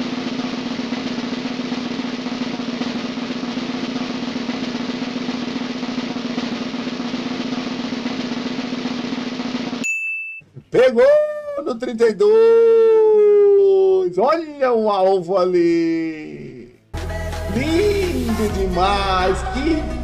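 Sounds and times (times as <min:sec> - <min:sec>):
snare drum roll: 0:00.0 - 0:09.8.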